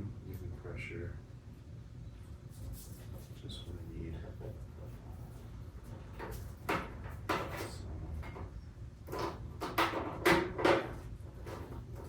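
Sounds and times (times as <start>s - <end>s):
hard objects knocking and clattering: 9.1s - 11.8s.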